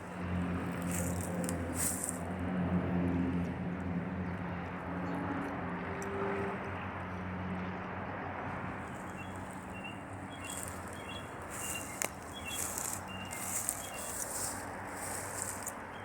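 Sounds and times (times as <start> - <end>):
bird chirps: 8.9 - 16.0.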